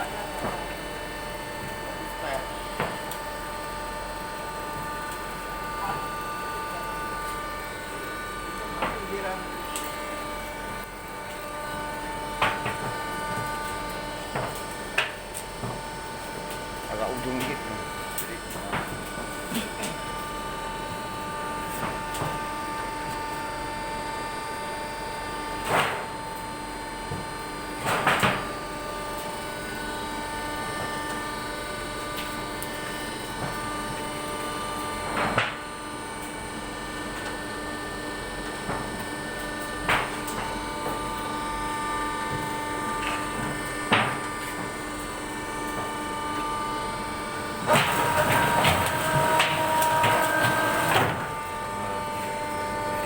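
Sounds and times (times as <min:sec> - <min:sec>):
machine motor hum: 0:26.5 - 0:53.0.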